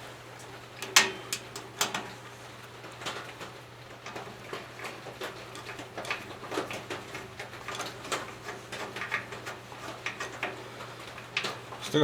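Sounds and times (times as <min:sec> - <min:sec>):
small metallic clicks and taps: 0:00.8 - 0:02.1.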